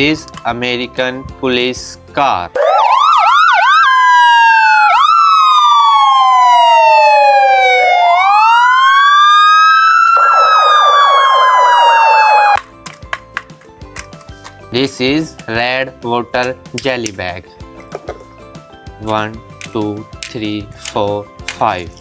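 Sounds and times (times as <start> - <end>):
police siren wailing: 2.6 - 12.6.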